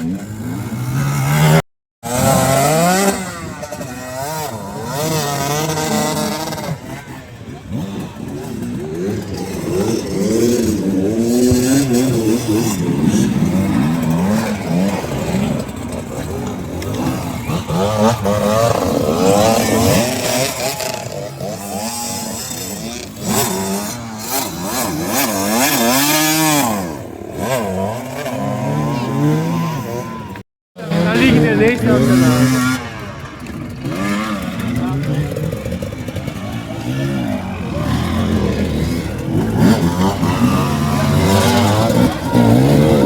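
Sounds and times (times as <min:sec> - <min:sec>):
motocross bike engines revving: 0:00.0 - 0:43.0.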